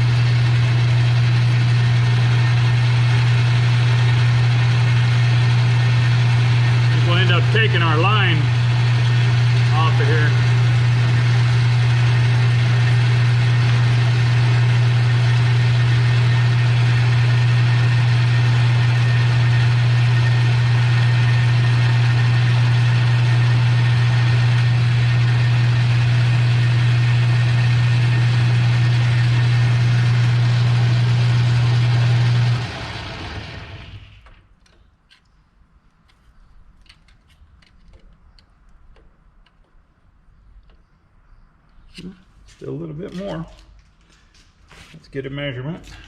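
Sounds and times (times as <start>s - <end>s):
lathe motor hum: 0.0s - 34.3s.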